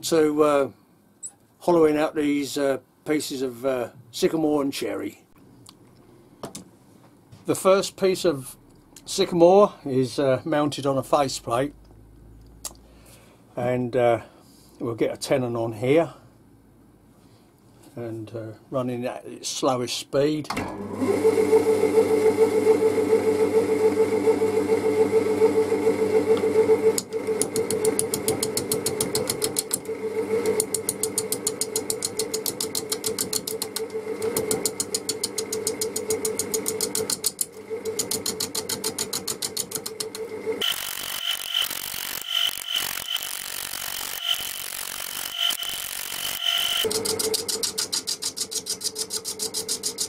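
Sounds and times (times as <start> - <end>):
lathe motor hum: 21.0 - 47.6
gouge ticking on spinning wood: 34.4 - 40.2.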